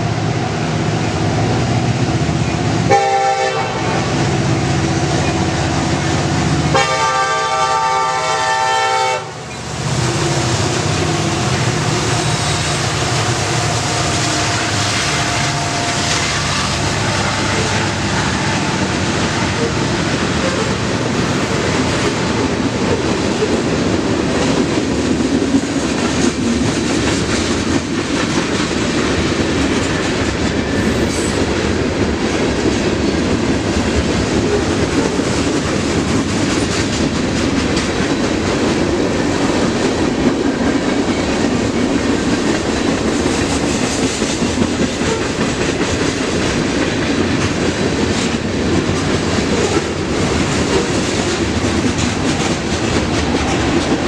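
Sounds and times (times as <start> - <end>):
freight train rumbling: 0.0 - 54.0
wheels clacking over rail joints: 31.7 - 54.0.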